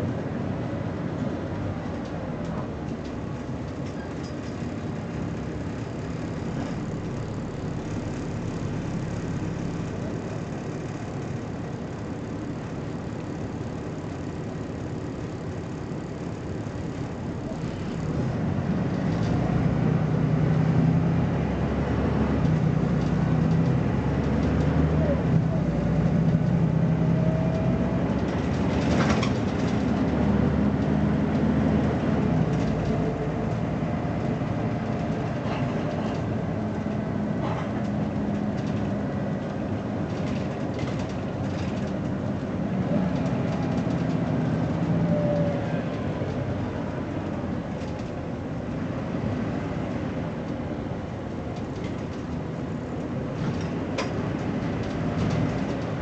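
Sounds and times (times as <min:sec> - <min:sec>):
bus diesel engine running: 0:00.0 - 0:56.0
bus body knocks and rattles: 0:27.6 - 0:33.0, 0:34.2 - 0:44.9, 0:50.3 - 0:56.0.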